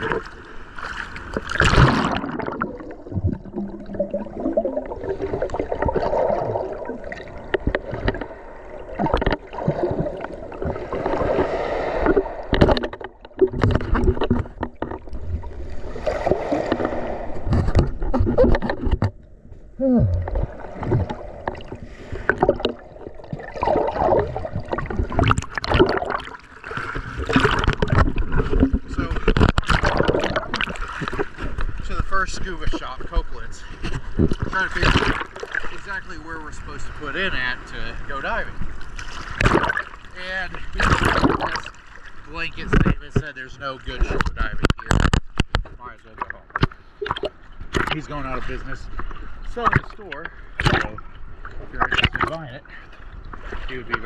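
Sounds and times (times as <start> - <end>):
water sloshing and splashing: 0.0 - 54.0
ocean surf breaking: 8.0 - 13.2, 15.5 - 17.8.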